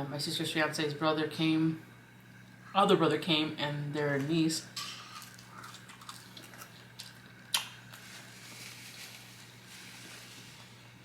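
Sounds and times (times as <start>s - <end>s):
faint steady hum: 0.0s - 11.0s
person chewing food: 4.8s - 8.3s.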